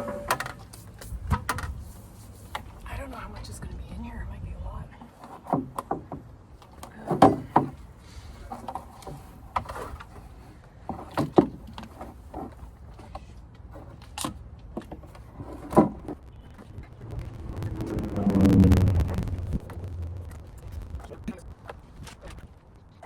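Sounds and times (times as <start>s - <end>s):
low rumble: 15.9s - 22.8s.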